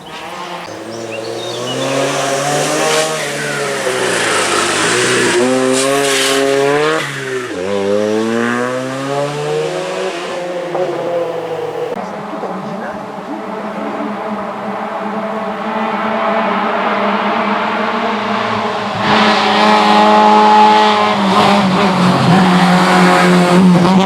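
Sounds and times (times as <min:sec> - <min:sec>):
gear upshifts: 0:00.0 - 0:12.0
rally car engine at full throttle: 0:00.0 - 0:24.0.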